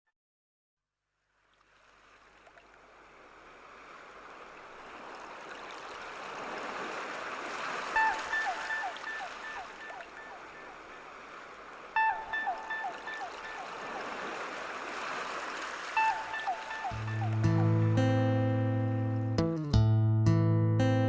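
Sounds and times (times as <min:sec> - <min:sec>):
rushing water: 0:01.4 - 0:18.1.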